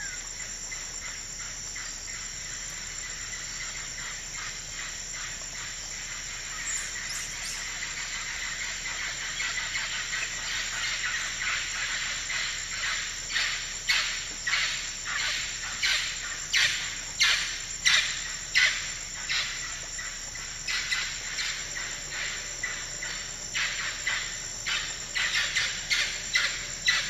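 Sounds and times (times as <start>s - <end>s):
chorus of high-pitched animal calls: 20.7s - 27.0s.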